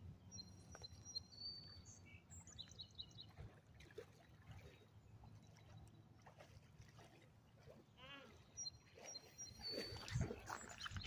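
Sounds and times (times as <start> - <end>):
faint high bird chirps: 8.0 - 11.0.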